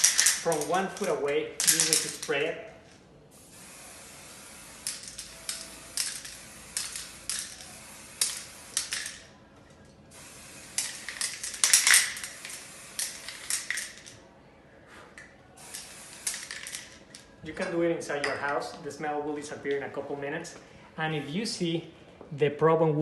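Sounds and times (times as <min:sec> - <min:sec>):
aerosol can spraying: 0:03.3 - 0:09.3, 0:10.1 - 0:14.1, 0:15.6 - 0:17.0.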